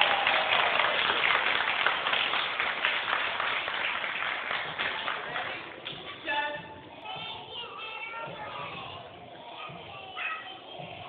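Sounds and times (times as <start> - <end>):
audience applause: 0.0 - 5.9.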